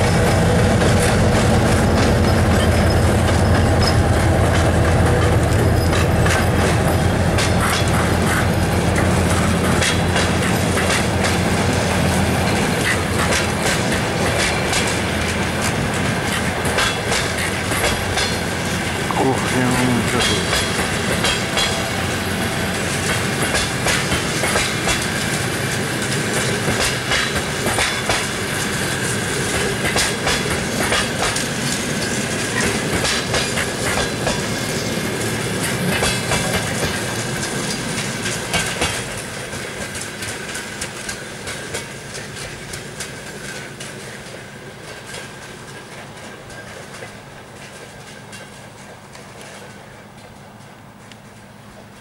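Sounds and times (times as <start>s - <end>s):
steady rolling rumble: 0.0s - 24.6s
train wheels clattering over joints: 0.0s - 52.0s.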